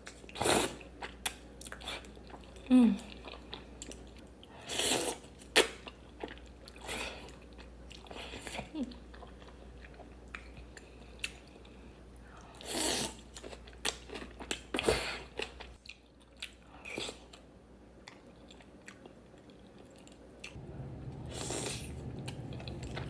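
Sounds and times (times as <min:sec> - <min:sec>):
wet chewing: 0:18.0 - 0:23.0.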